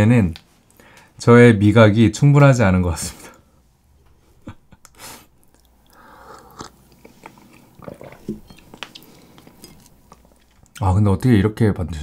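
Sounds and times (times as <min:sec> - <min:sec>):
crisp crunchy chewing: 0:05.4 - 0:10.8.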